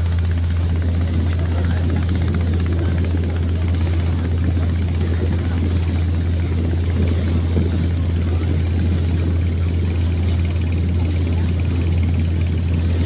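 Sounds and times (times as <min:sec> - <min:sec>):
ship engine droning: 0:00.0 - 0:13.0.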